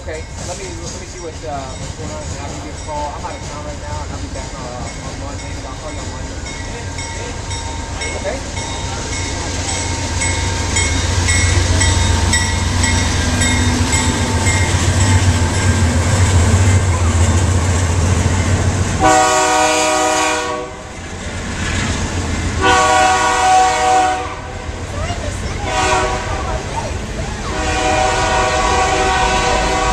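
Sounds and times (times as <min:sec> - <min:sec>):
diesel locomotive engine rumble: 0:00.0 - 0:29.9
train horn blast: 0:19.0 - 0:20.9, 0:22.6 - 0:24.7, 0:25.6 - 0:26.7, 0:27.5 - 0:29.9.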